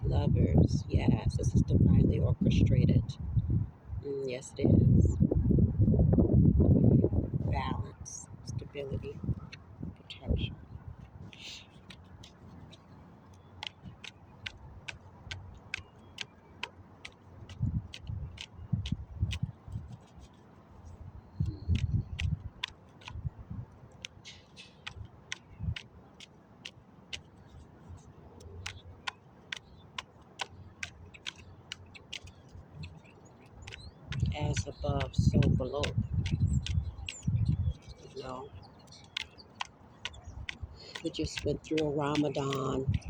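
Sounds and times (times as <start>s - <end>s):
faint low rumble: 0.0s - 13.0s
bird chip notes: 27.1s - 43.0s
sharp high-pitched ticks: 28.4s - 43.0s.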